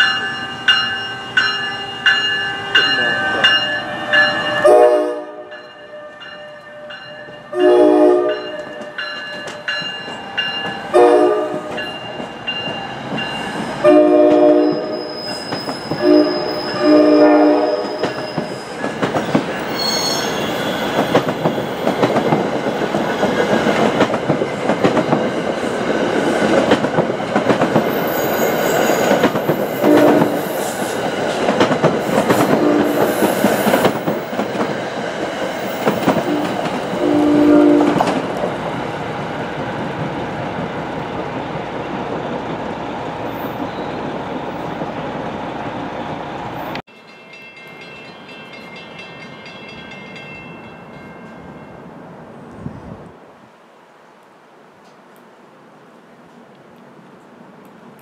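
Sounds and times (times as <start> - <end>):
train horn blasts: 2.6 - 9.0, 10.9 - 11.8, 13.8 - 15.0, 15.9 - 18.3, 29.8 - 30.4, 32.5 - 33.1, 36.2 - 38.1
train wheels clattering: 8.3 - 10.9, 17.8 - 38.6
wheel squeal: 14.6 - 16.9, 17.8 - 22.0, 27.9 - 29.8.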